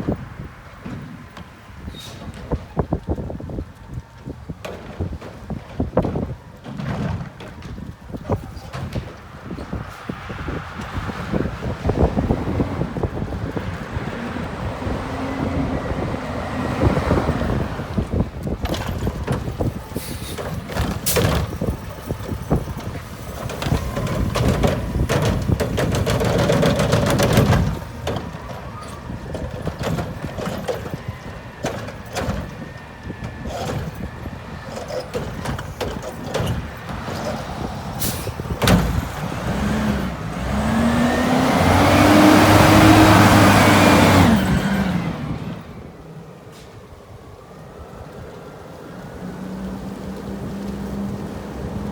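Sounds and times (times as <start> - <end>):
clanks of arm and carts: 0.1 - 16.1, 16.8 - 46.9
air brake hiss: 1.9 - 2.3, 20.0 - 20.4.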